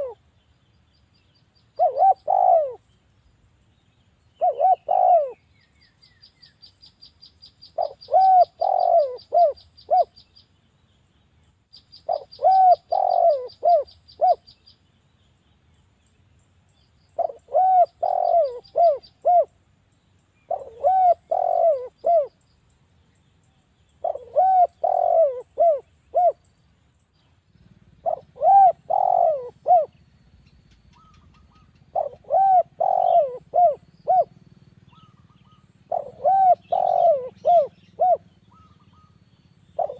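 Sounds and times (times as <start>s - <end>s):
dove cooing: 0.0s - 0.2s, 1.7s - 2.8s, 4.4s - 5.5s, 7.8s - 10.2s, 12.0s - 14.5s, 17.2s - 19.6s, 20.5s - 22.4s, 24.0s - 26.4s, 27.6s - 30.0s, 30.8s - 39.2s.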